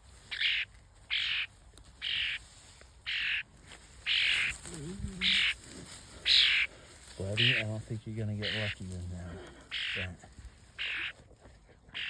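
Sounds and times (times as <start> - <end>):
bird giving harsh begging calls: 0.3 - 2.4, 3.1 - 5.6, 6.2 - 6.7, 7.3 - 7.7, 8.4 - 8.8, 9.7 - 10.2, 10.8 - 11.2.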